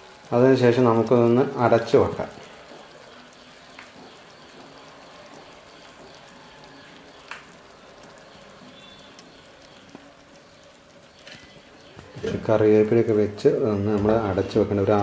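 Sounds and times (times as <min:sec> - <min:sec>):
food faintly sizzling in a pan: 0:00.0 - 0:15.0
light clicks in a pan: 0:03.7 - 0:04.0, 0:07.2 - 0:08.2.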